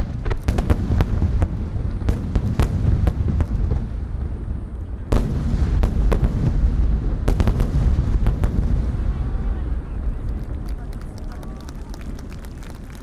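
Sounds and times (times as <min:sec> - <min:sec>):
fireworks bangs: 0:00.0 - 0:13.0
low rumble of reports: 0:03.2 - 0:13.0.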